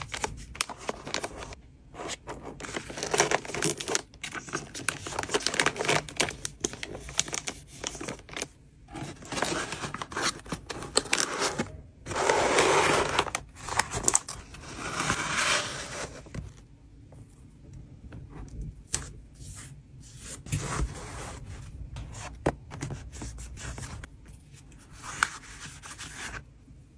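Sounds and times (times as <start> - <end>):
plastic sleeves rustling: 0.0 - 16.6
packaging crinkling or tearing: 2.6 - 14.8.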